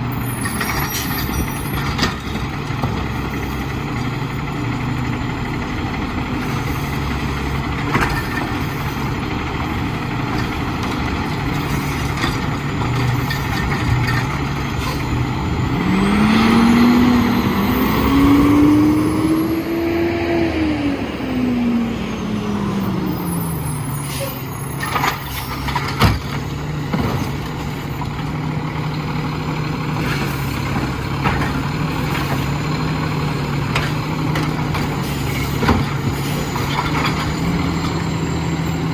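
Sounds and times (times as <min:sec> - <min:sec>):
diesel engine revving: 0:00.0 - 0:38.9
diesel truck engine idling: 0:00.0 - 0:38.9.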